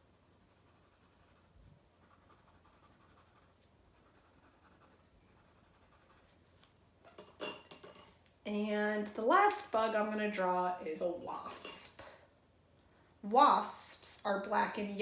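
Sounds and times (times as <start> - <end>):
pencil scratching on paper: 0.0 - 6.4.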